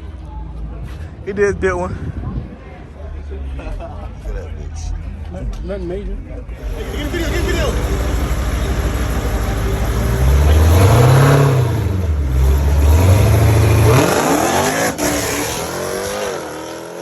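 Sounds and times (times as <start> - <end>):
car engine revving: 6.6 - 17.0.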